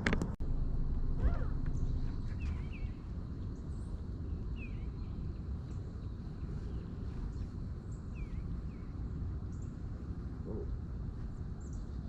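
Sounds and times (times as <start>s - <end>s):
steady low rumble: 0.0s - 12.0s
small bird chirping: 1.3s - 9.8s.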